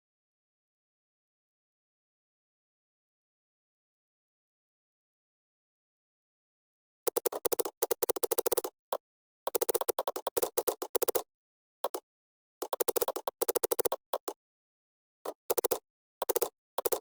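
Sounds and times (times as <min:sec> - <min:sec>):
keyboard typing: 0:07.1 - 0:08.8, 0:09.5 - 0:12.0, 0:12.6 - 0:14.4, 0:15.3 - 0:17.0.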